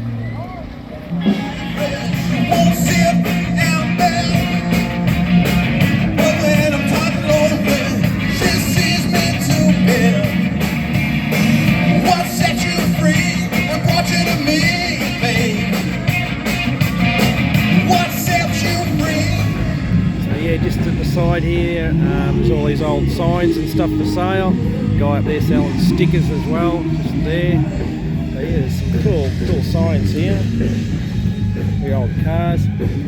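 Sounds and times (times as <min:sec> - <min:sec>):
electric guitar: 0:00.0 - 0:33.0
person singing: 0:01.2 - 0:05.1, 0:06.1 - 0:10.5, 0:11.8 - 0:16.1, 0:17.7 - 0:19.8
loud drums: 0:01.2 - 0:33.0.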